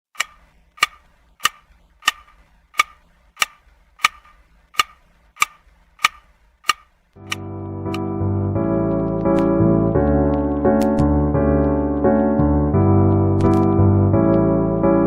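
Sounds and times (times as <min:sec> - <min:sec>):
sharp ticks: 0:00.1 - 0:08.0.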